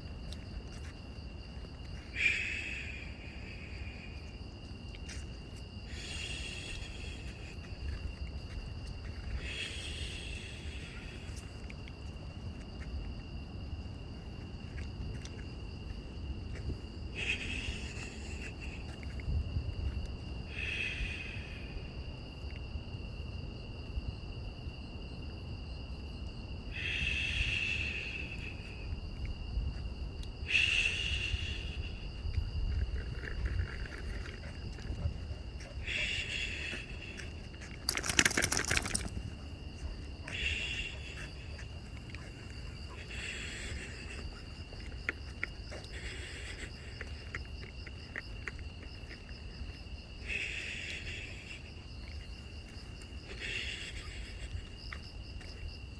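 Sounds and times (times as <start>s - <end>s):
night insects chirping: 0.0s - 55.9s
noisy animal cry: 35.0s - 37.2s.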